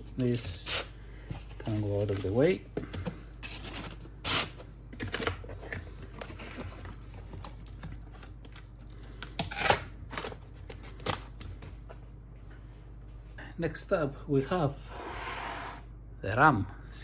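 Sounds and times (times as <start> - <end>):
boxes and packaging handled: 0.0 - 12.1.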